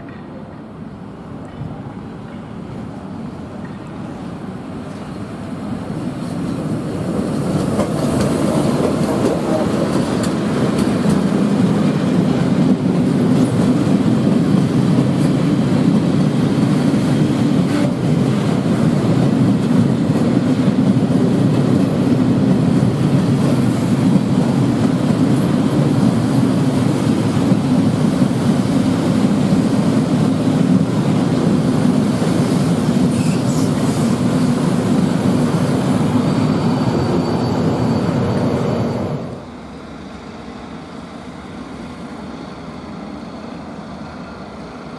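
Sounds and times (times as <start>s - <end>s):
train wheels on rails: 0.0s - 44.9s
faint high squeal: 35.7s - 44.9s.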